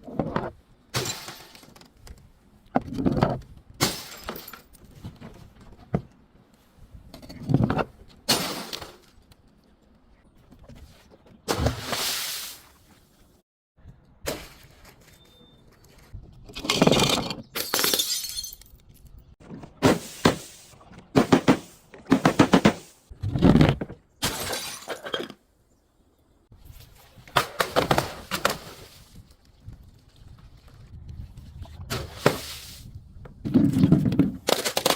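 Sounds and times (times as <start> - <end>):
glass bottles crushing and shattering: 1.0 - 1.8, 3.8 - 4.8, 16.6 - 18.8, 24.2 - 25.3, 34.4 - 34.9.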